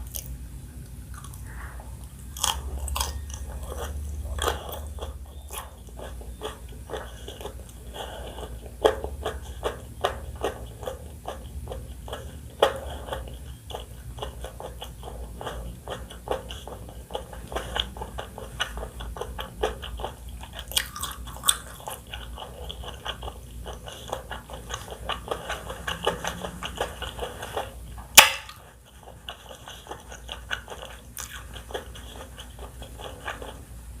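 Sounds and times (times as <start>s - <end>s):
chewing crunchy food: 0.0s - 34.0s.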